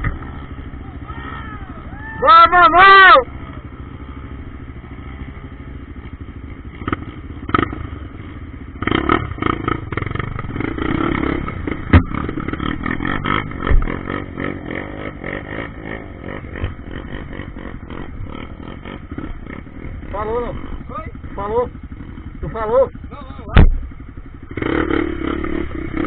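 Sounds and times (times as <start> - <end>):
motorcycle engine revving: 0.0 - 26.0
sharp knocks and clatters: 11.7 - 12.7.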